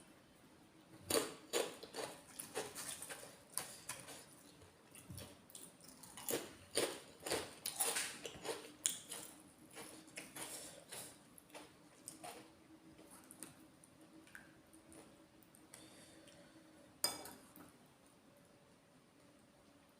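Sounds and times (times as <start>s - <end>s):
wet chewing and mouth smacks: 2.0s - 12.4s.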